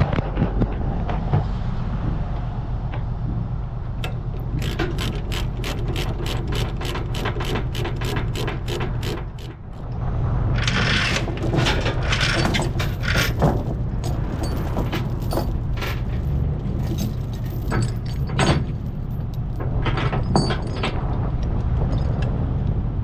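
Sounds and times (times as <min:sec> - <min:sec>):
mechanical ratcheting clicks: 0:04.0 - 0:10.0.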